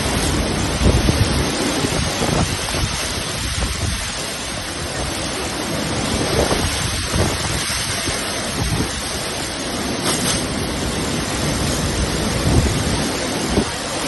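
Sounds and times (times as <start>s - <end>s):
heavy rain: 0.0s - 14.0s
wind gusting against microphone: 0.0s - 14.0s.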